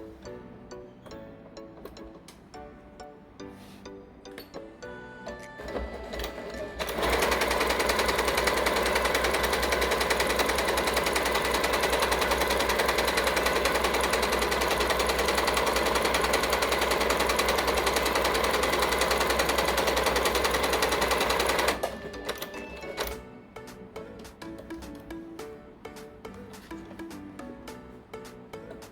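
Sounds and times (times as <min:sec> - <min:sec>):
sewing machine stitching: 0:05.6 - 0:23.2.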